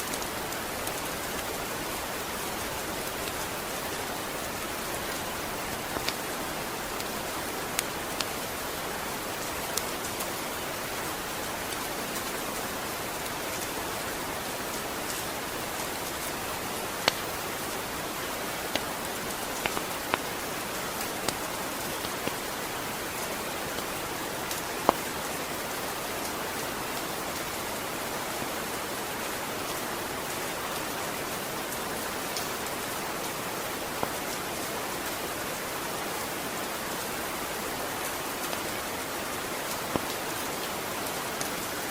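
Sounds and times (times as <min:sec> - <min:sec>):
steady rain hiss: 0:00.0 - 0:41.9
water drips ticking: 0:05.7 - 0:06.3, 0:15.8 - 0:23.9.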